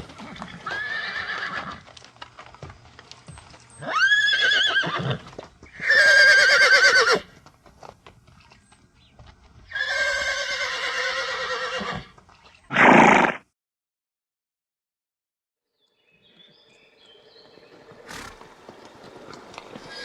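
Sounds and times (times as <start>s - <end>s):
horse whinnying: 0.3s - 1.8s, 3.8s - 7.3s, 9.7s - 12.1s, 12.7s - 13.4s, 18.0s - 18.5s.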